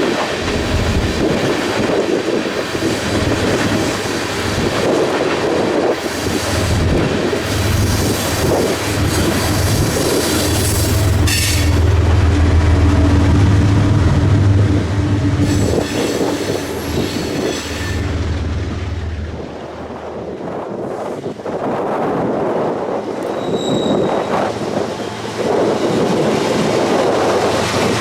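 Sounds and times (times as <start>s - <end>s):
train wheels rumbling on rail: 0.0s - 28.0s
high-pitched wheel squeals: 8.1s - 11.8s, 23.2s - 24.5s.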